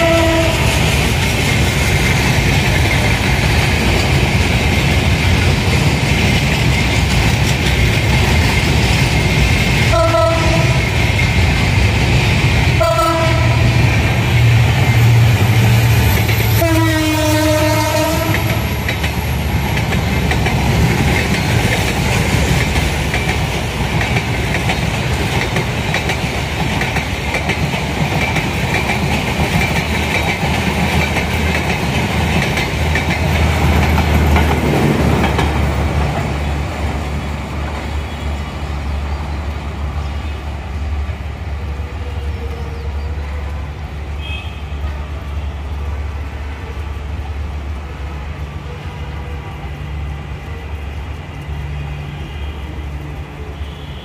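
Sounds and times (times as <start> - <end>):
locomotive horn blasts: 0.0 - 0.8, 9.9 - 10.9, 12.8 - 13.8, 16.6 - 18.6, 44.2 - 45.8, 53.4 - 54.0
train rumbling: 0.0 - 54.0
train wheels clickety-clack on track: 0.0 - 54.0.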